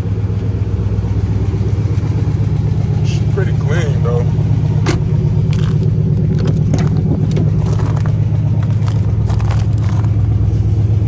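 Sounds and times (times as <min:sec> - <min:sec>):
car engine idling: 0:00.0 - 0:11.0
rustling: 0:05.5 - 0:10.2.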